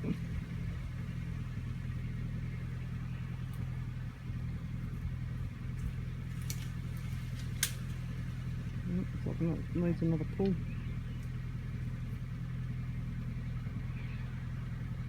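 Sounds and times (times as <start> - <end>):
vehicle engine idling: 0.0 - 15.0
sharp clicks: 7.4 - 8.0.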